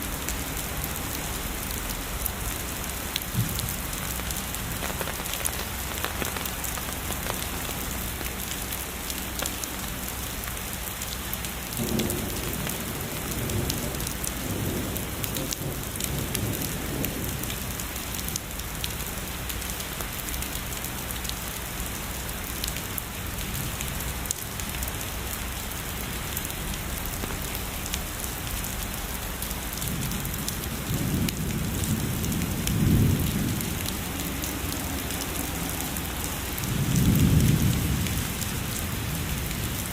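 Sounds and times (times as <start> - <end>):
heavy rainfall: 0.0 - 39.9
distant thunder rumbling: 29.9 - 39.9.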